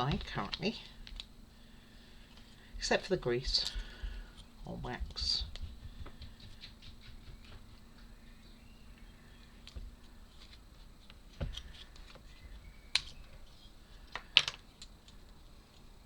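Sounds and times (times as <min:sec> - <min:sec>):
wooden parts clicking and knocking: 0:14.1 - 0:15.3.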